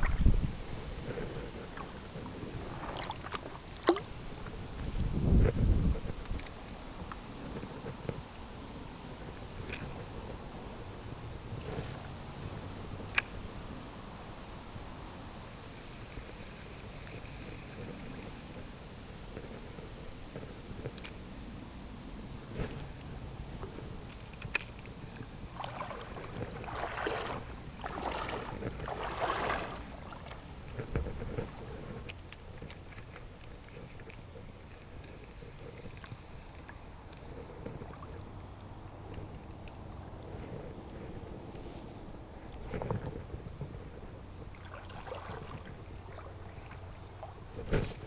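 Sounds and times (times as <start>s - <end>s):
river water flowing: 0.0s - 4.8s, 23.2s - 31.7s, 44.5s - 47.6s
water swishing and sloshing: 0.0s - 13.3s, 22.0s - 41.4s, 42.4s - 48.0s.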